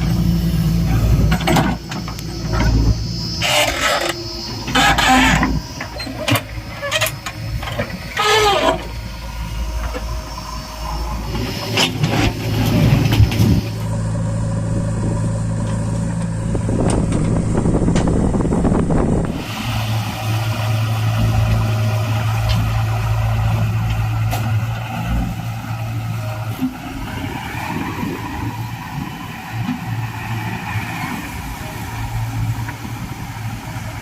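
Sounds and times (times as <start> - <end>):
diesel machinery engine: 0.0 - 34.0
short squeals: 1.8 - 9.5.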